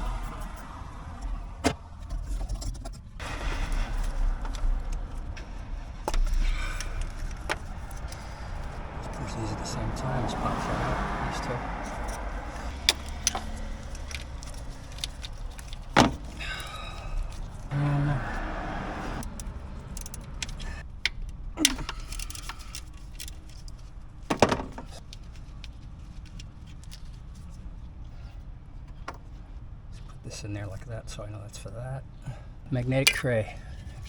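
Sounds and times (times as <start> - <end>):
tools clicking and clinking: 11.8 - 17.6, 19.2 - 25.7.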